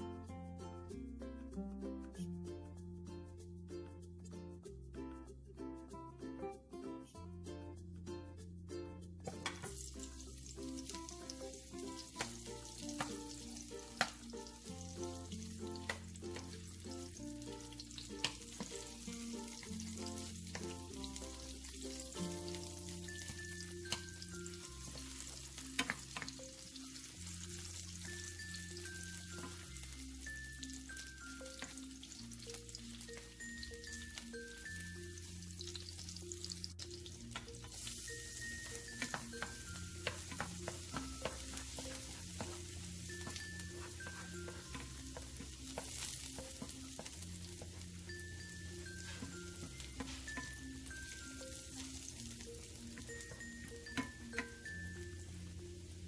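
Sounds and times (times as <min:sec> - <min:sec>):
soft background music: 0:00.0 - 0:56.0
garlic and ginger sizzling in oil: 0:09.3 - 0:56.0
wooden spoon tapping pan: 0:10.8 - 0:14.3, 0:15.7 - 0:16.6, 0:18.2 - 0:26.4, 0:37.3 - 0:37.9, 0:38.5 - 0:47.8, 0:48.4 - 0:52.1, 0:52.9 - 0:54.8.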